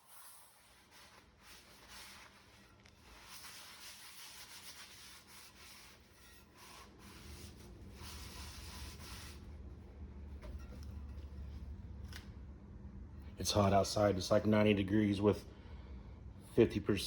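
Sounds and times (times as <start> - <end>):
steel wool scrubbing cast iron pot: 0.0 - 11.6.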